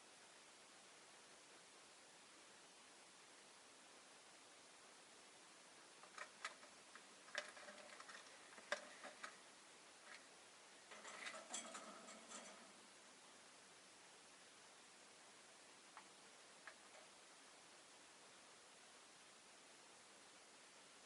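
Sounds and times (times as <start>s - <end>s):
faint steady hiss: 0.0s - 21.0s
birds clicking and tapping in cage: 6.0s - 12.8s, 15.9s - 17.2s.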